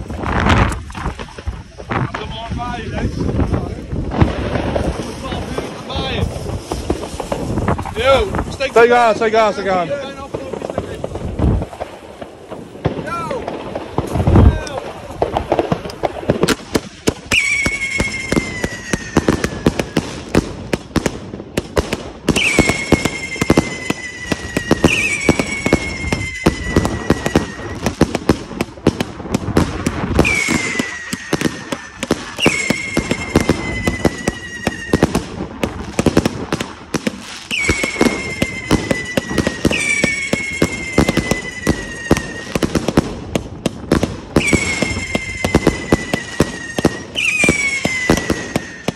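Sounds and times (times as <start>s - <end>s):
firework crackling and popping: 0.0s - 48.9s
firework whistles falling in pitch: 17.2s - 20.2s, 22.3s - 28.3s, 30.1s - 35.4s, 37.4s - 43.0s, 44.3s - 48.9s.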